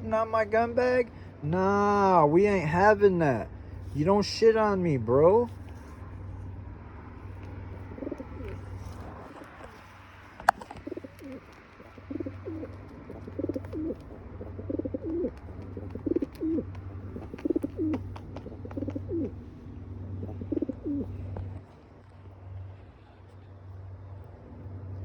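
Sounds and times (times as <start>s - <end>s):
steady low hum: 0.0s - 25.0s
bird cooing: 7.7s - 19.4s, 20.1s - 21.5s.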